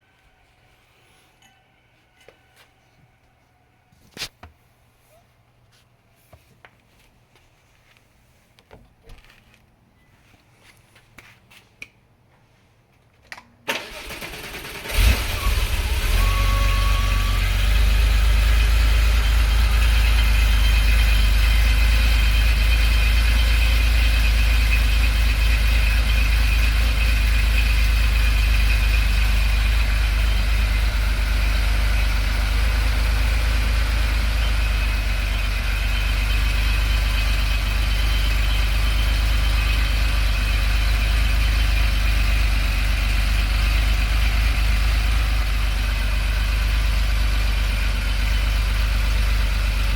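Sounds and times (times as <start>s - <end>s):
car engine idling: 13.8s - 49.9s.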